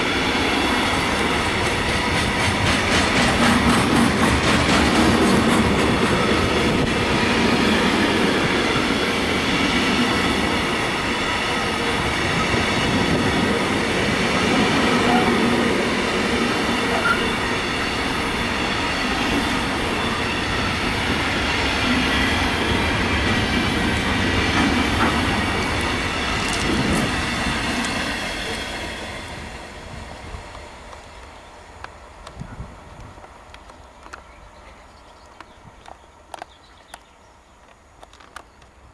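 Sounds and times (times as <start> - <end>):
steel wheels running on rails: 0.0 - 37.1.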